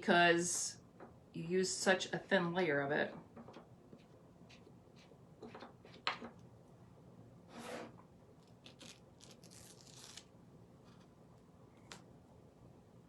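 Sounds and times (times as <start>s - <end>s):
mesh stencil peeling off wood: 8.6s - 10.3s.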